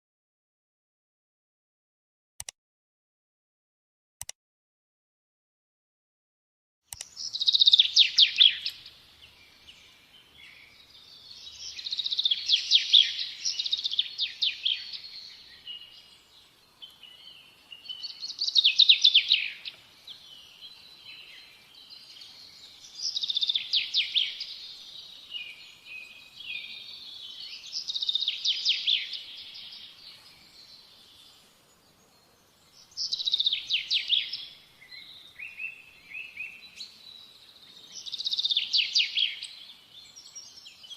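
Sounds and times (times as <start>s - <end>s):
songbird trilling: 7.0s - 9.0s, 22.6s - 29.8s, 32.8s - 37.0s.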